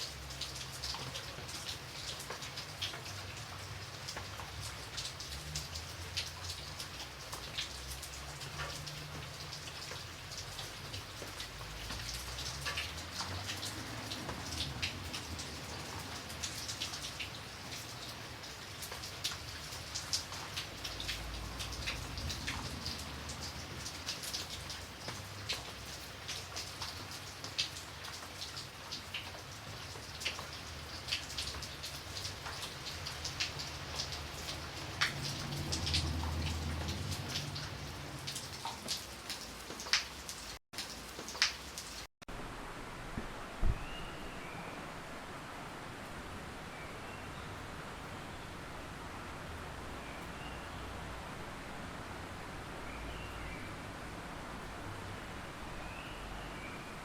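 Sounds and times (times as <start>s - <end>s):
raindrops pattering: 0.0s - 43.9s.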